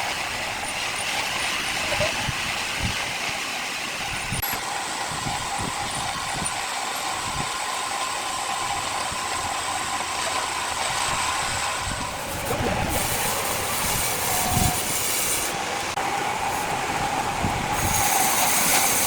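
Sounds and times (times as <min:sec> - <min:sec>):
heavy machinery whining: 0:04.3 - 0:19.0.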